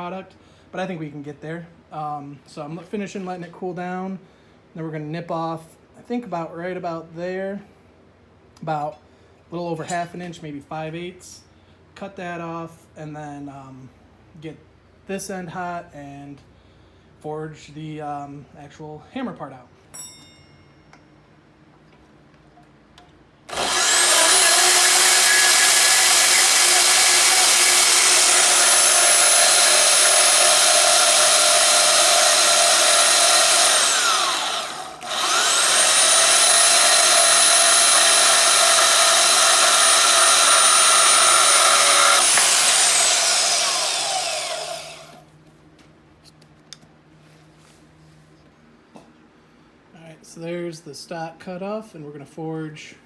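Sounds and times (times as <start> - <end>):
power cutting tool cutting steel: 23.5 - 45.2.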